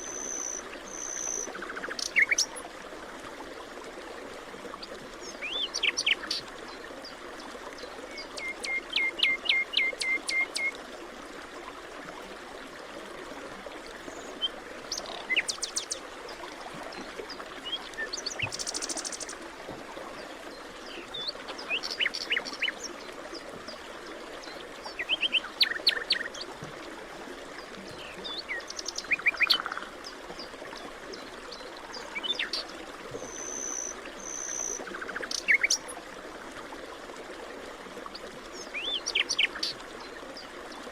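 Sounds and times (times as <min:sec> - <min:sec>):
forest birds chirping and trilling: 0:00.0 - 0:02.6, 0:14.1 - 0:16.0, 0:20.5 - 0:23.0, 0:24.4 - 0:26.4, 0:27.9 - 0:30.5, 0:31.2 - 0:35.9, 0:38.5 - 0:39.8.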